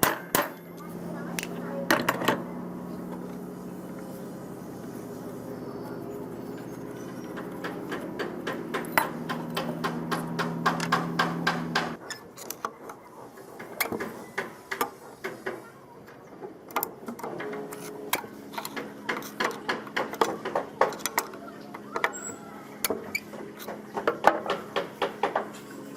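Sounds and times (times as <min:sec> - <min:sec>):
low machine hum: 0:00.0 - 0:12.0, 0:15.9 - 0:25.9.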